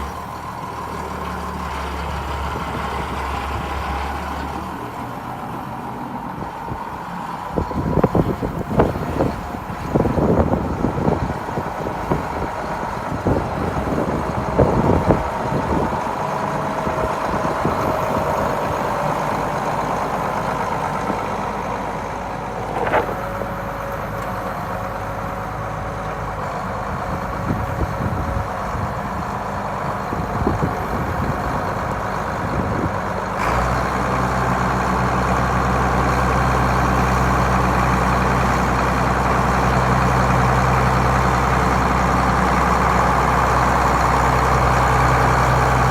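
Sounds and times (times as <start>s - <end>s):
tractor diesel engine running: 0.0s - 45.9s
wind noise: 6.2s - 19.8s, 26.7s - 33.3s.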